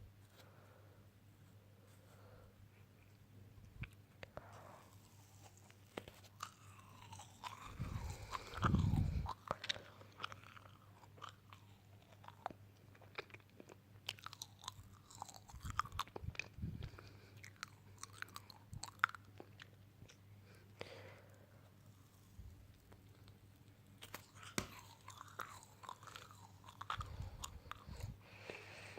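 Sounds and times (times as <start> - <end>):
chewing crunchy food: 4.8 - 20.9, 21.9 - 28.8.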